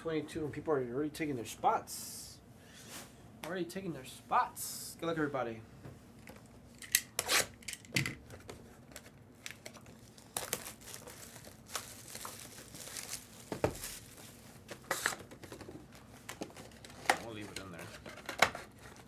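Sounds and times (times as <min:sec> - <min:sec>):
plastic wrapping crinkling and tearing: 0:08.9 - 0:15.3.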